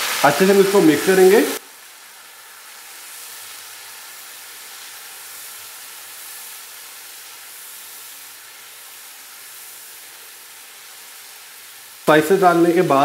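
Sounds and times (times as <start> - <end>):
potatoes sizzling in oil: 0.0 - 13.0.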